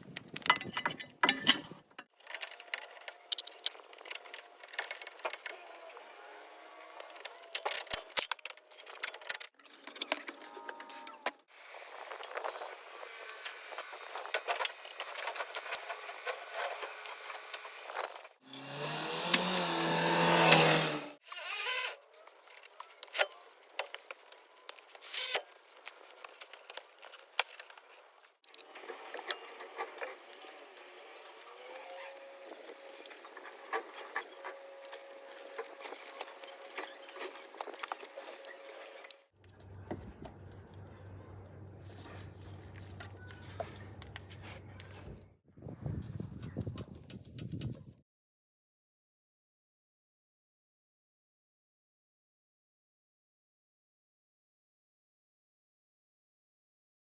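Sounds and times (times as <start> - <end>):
metal tools clinking: 0.2 - 5.5
power tool whirring: 15.8 - 22.0, 28.5 - 39.2.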